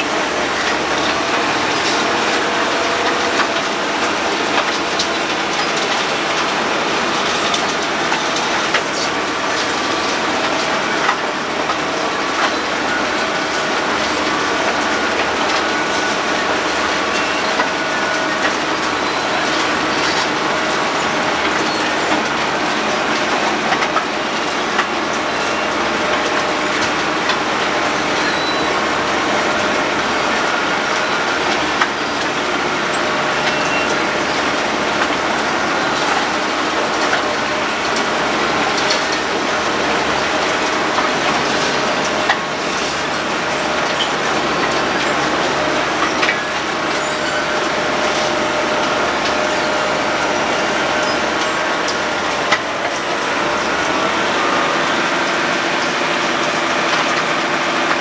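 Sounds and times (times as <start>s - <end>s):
road planer grinding clatter: 0.0s - 58.0s.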